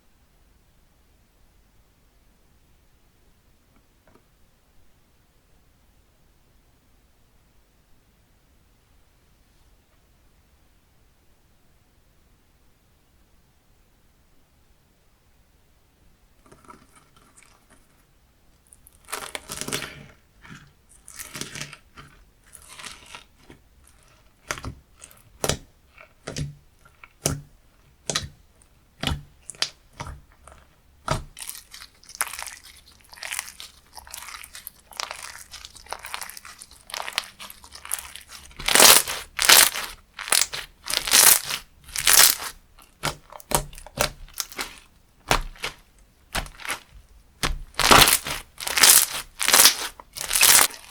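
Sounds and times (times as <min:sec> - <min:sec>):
crunchy slime crackling: 0:18.7 - 0:50.9.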